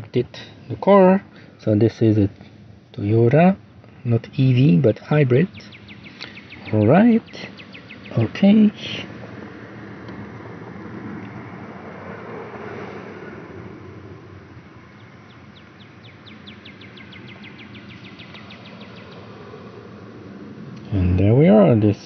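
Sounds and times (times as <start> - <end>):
low hum: 0.0 - 22.0
bird trilling: 5.4 - 9.6, 14.2 - 21.0.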